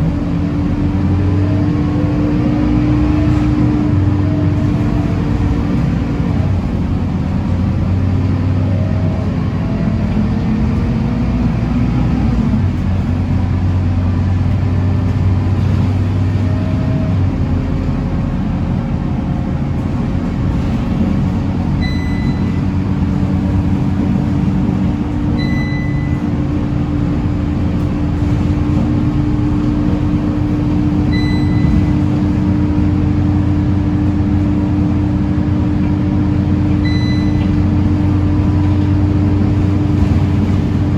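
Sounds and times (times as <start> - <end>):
bus engine droning: 0.0 - 40.9
short high beeps: 21.8 - 22.6, 25.4 - 26.3, 31.1 - 31.9, 36.8 - 37.5.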